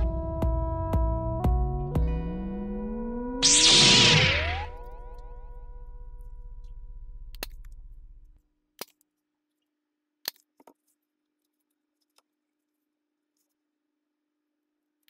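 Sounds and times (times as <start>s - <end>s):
low held tone: 0.0s - 8.4s.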